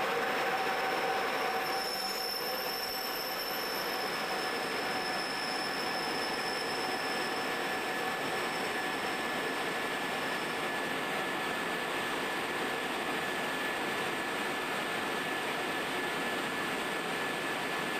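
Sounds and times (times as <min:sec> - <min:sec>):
train wheels rumbling on rail: 0:00.0 - 0:17.9
high-pitched wheel squeal: 0:00.2 - 0:10.9.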